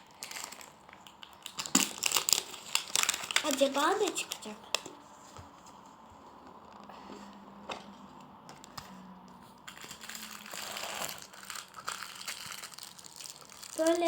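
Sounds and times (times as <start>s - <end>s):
packaging wrapper crinkling: 0.0s - 4.9s, 9.7s - 14.0s.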